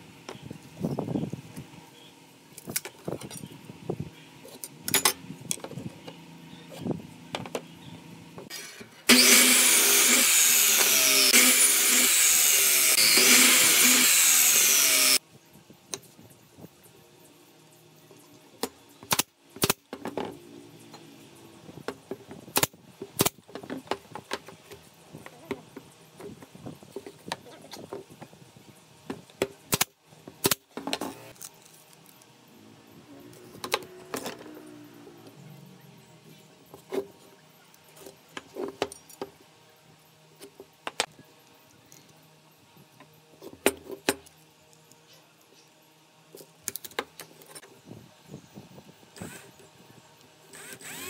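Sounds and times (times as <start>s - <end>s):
miter saw cutting wood: 8.5s - 15.2s, 49.2s - 49.6s, 50.5s - 51.0s.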